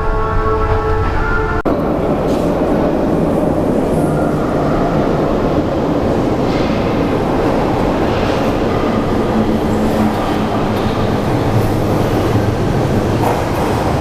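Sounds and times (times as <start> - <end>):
train wheels rumbling on rails: 0.6 - 14.0.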